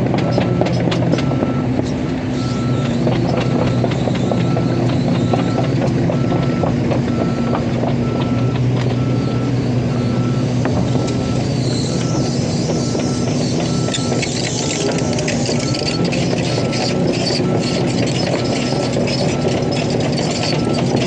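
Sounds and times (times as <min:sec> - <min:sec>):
heavy diesel machinery running: 0:00.0 - 0:21.0
warning alarm beeping: 0:02.4 - 0:21.0.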